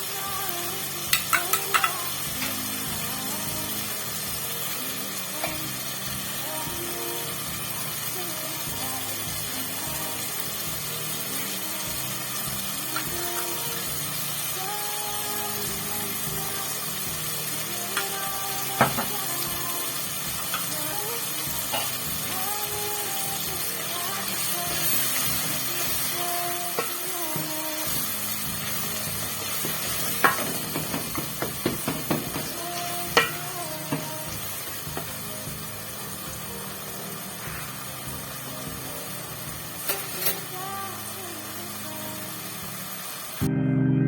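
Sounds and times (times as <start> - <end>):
food sizzling in a pan: 0.0 - 43.5
spoon knocking and scraping pot: 29.6 - 34.0.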